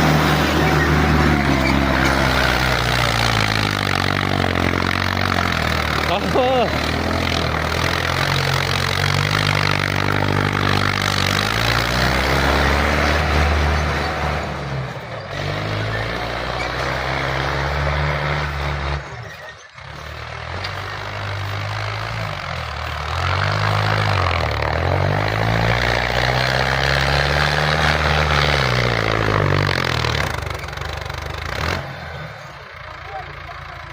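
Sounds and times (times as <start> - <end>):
tractor engine revving: 0.0 - 33.9.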